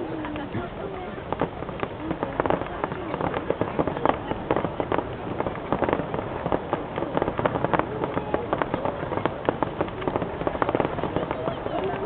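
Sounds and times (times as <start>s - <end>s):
firework bangs and crackles: 0.0s - 12.0s.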